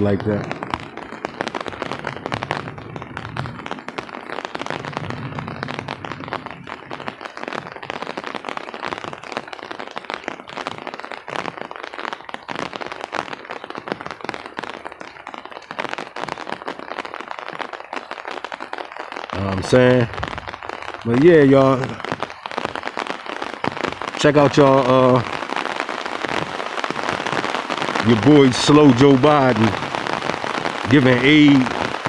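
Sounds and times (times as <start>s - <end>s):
raindrops tapping: 0.0s - 9.3s, 19.2s - 32.0s.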